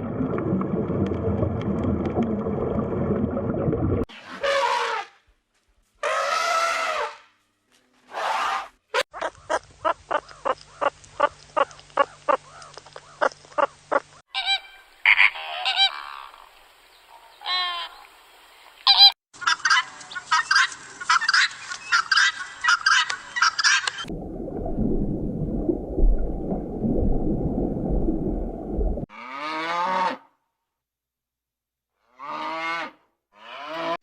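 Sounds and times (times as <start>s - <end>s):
waterfowl calling: 9.0s - 16.5s.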